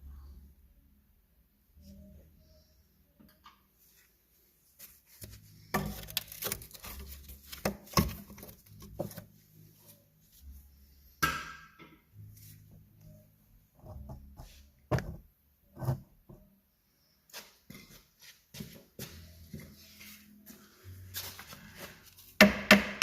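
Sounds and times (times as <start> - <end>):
faint low hum: 0.0 - 7.5.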